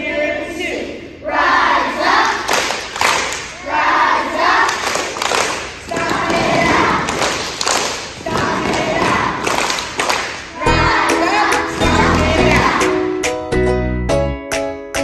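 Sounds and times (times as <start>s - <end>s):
children chanting in unison: 0.0s - 2.6s, 3.6s - 5.2s, 5.8s - 7.4s, 8.2s - 9.8s, 10.5s - 13.0s.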